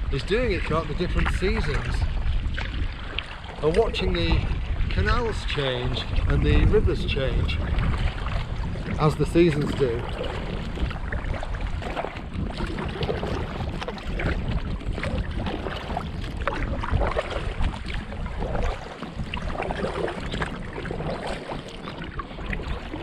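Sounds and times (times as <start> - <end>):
paddle splashing in water: 0.0 - 23.0
wind on microphone: 0.0 - 23.0.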